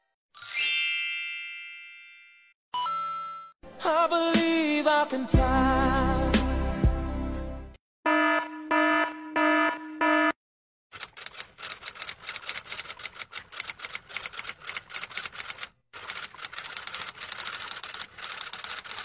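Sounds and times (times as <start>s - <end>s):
keyboard typing: 11.0s - 19.0s.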